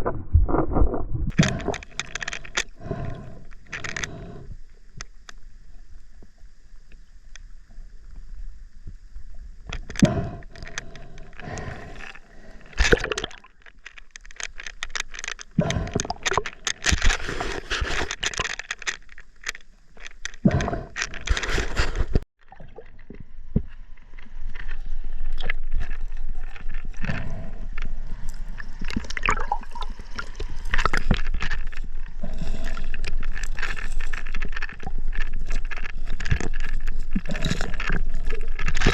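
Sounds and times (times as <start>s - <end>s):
scraping rubbing and knocks: 13.9s - 22.3s.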